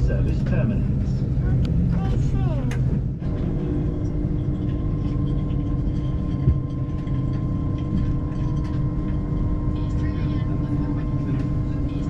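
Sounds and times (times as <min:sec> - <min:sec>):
train rumble: 0:00.0 - 0:12.0
train whine: 0:00.0 - 0:12.0.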